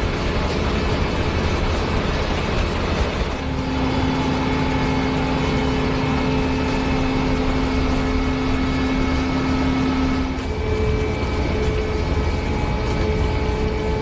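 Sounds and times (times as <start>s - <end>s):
continuous humming tone: 0.0s - 14.0s
harvester machinery and engine: 0.0s - 14.0s.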